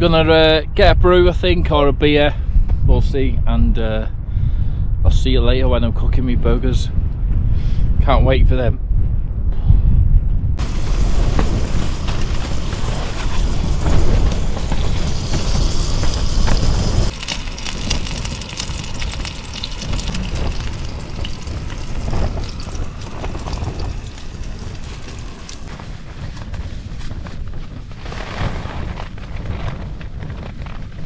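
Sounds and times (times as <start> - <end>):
wind rumbling on microphone: 0.0 - 31.0
burgers sizzling in frying pan: 10.6 - 26.1.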